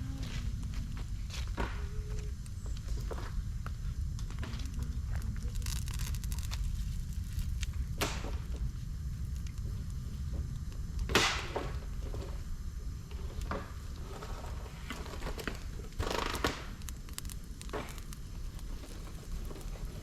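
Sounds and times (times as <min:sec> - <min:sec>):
campfire burning: 0:00.0 - 0:20.0
sharp snaps and pops of fire: 0:00.3 - 0:20.0.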